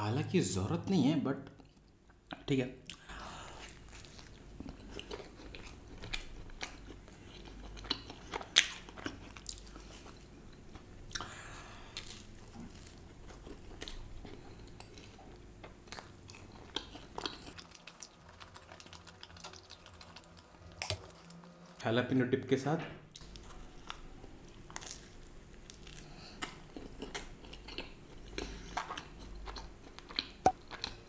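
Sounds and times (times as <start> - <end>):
person chewing pizza: 2.9 - 21.8, 23.1 - 31.0.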